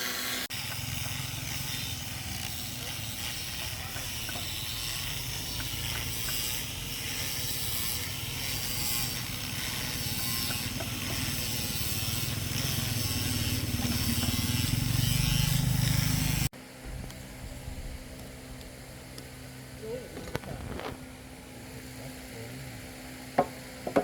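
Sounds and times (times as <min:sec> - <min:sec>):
hand tool grinding wood: 0:00.0 - 0:16.5.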